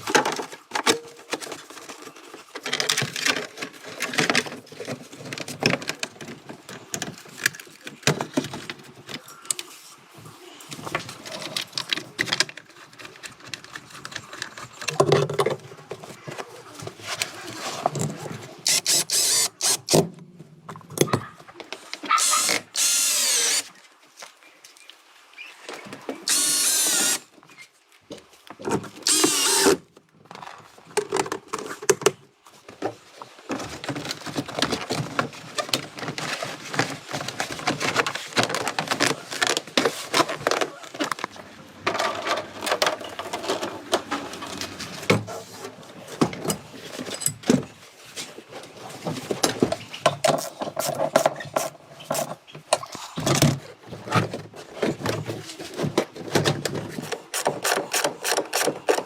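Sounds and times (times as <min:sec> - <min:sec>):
power tool running: 0:18.7 - 0:20.0, 0:22.2 - 0:23.7, 0:26.3 - 0:27.3, 0:29.0 - 0:29.8
tools and parts clattering: 0:46.1 - 0:47.8.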